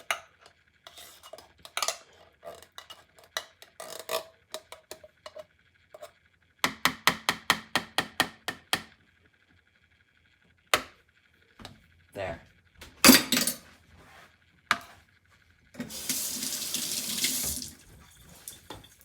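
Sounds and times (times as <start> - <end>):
spoon scraping tin can: 0.8 - 4.3.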